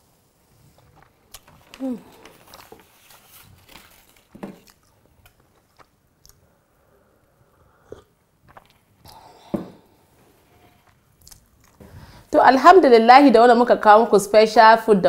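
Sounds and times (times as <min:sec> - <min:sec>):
person chewing quietly: 0:00.4 - 0:03.4, 0:04.6 - 0:12.2.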